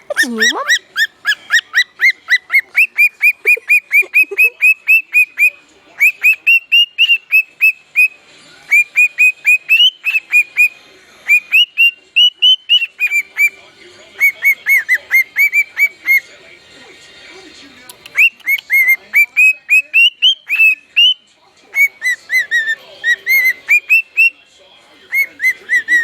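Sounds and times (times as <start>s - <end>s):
bird whistling: 0.0s - 13.6s, 14.2s - 16.3s, 17.9s - 24.4s, 25.0s - 26.0s.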